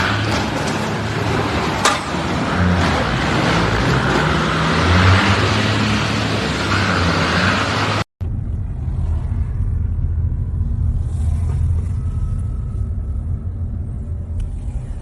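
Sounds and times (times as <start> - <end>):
car engine and tyre noise: 0.0 - 15.0.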